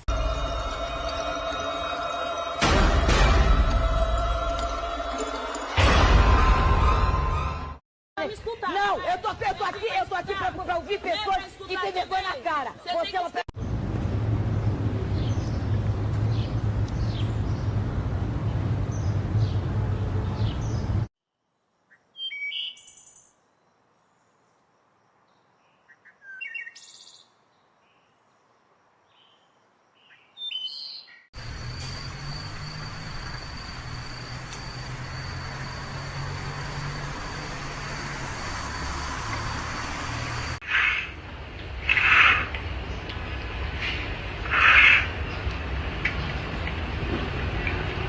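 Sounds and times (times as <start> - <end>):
high bird chirps: 21.9 - 23.4
thin high whine: 31.4 - 40.6.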